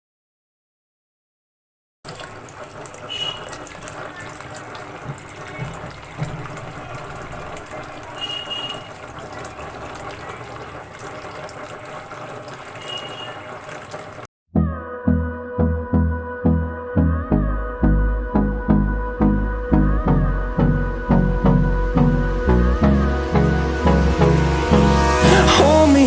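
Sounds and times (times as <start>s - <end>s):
tabletop fountain water splashing: 2.0s - 14.3s.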